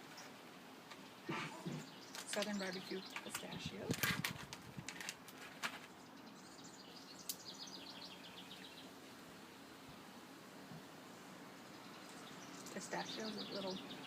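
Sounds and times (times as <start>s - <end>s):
bird chirping: 1.0s - 4.1s, 5.9s - 9.8s, 11.1s - 14.0s.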